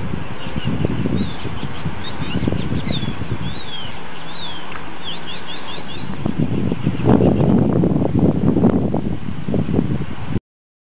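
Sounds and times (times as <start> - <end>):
low rumbling noise: 0.0 - 10.4
small birds chirping: 0.2 - 7.7.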